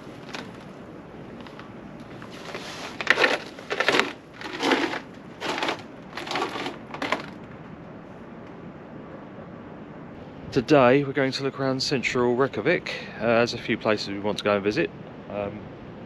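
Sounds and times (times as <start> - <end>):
crunching footsteps: 0.0 - 7.4.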